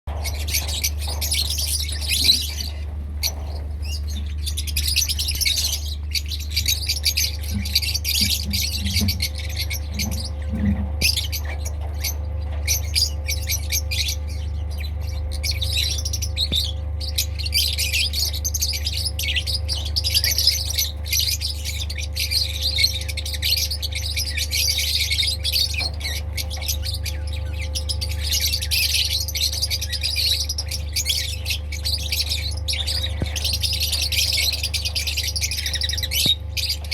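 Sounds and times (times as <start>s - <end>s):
lovebirds chattering and squawking: 0.1s - 36.9s
steady low hum: 0.1s - 36.9s.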